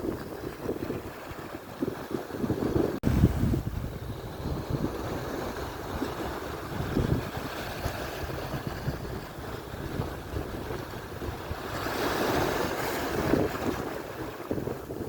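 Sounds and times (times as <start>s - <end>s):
waves breaking on shore: 0.0s - 15.0s
wind buffeting microphone: 0.0s - 15.0s.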